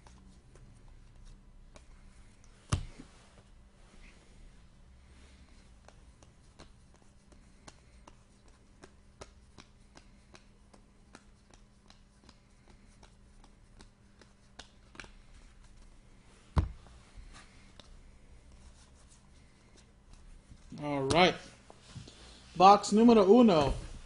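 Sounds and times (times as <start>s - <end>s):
cards clicking and rustling: 5.8s - 15.8s.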